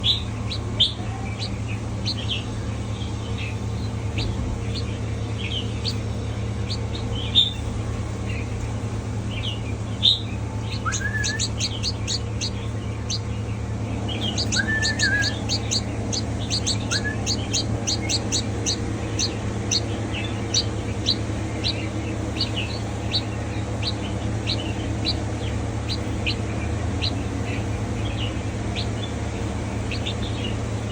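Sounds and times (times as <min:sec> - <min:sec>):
bird chirping: 0:00.0 - 0:30.9
steady low hum: 0:00.0 - 0:30.9
bird whistled glides: 0:10.1 - 0:13.4, 0:14.1 - 0:25.2.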